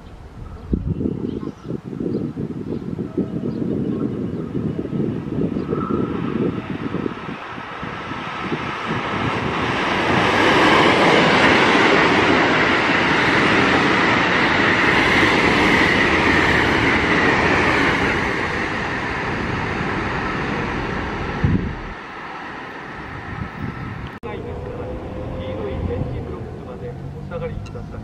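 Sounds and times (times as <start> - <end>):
train wheels rushing on rails: 5.6 - 28.0.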